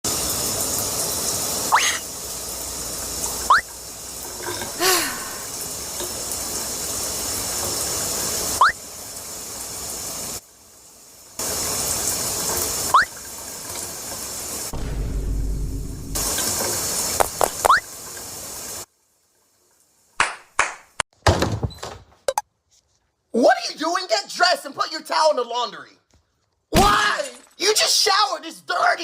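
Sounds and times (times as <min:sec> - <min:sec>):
shower water running: 0:00.1 - 0:20.2
low downward-bending squeal: 0:14.7 - 0:16.8.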